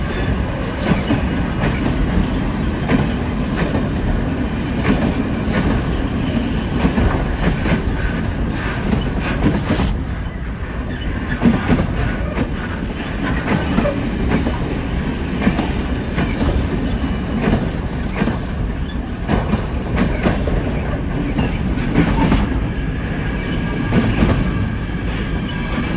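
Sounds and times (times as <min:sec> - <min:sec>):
heavy train rumble: 0:00.0 - 0:25.9
train wheels clacking over points: 0:00.0 - 0:25.9.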